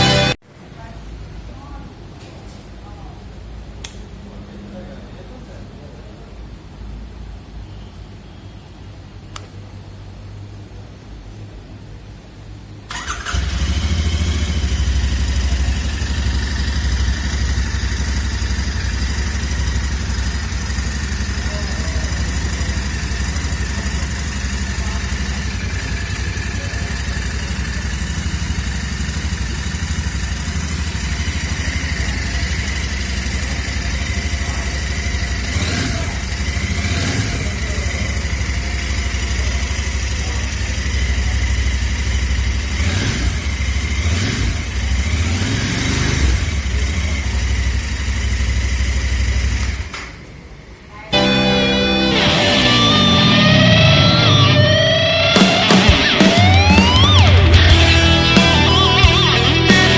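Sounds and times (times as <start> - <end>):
motorcycle engine idling: 12.9 - 49.9, 55.8 - 59.9.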